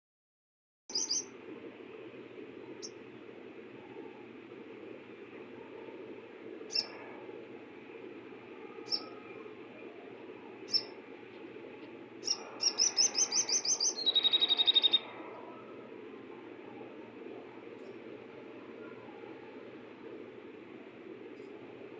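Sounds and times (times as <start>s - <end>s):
bird chirping and trilling: 0.9s - 1.3s, 6.7s - 7.0s, 8.8s - 9.3s, 10.6s - 11.0s, 12.2s - 15.1s
steady hiss: 1.0s - 21.9s.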